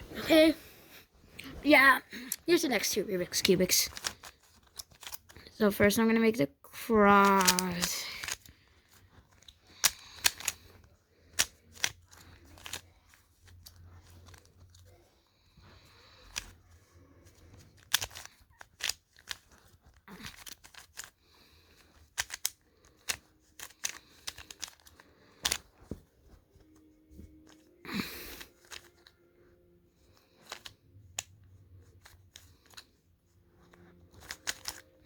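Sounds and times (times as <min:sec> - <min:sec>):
puzzle cube clicking as turned: 0:03.3 - 0:06.0, 0:07.0 - 0:14.9, 0:16.1 - 0:26.0, 0:27.3 - 0:29.1, 0:30.0 - 0:35.0.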